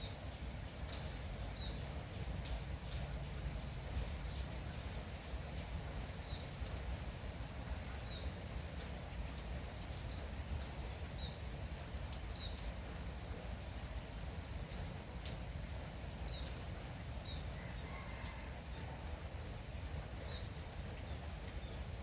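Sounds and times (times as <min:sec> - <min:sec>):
light rain hissing: 0:00.0 - 0:22.0
drip clicks: 0:00.9 - 0:01.2, 0:02.4 - 0:03.0, 0:15.2 - 0:15.4.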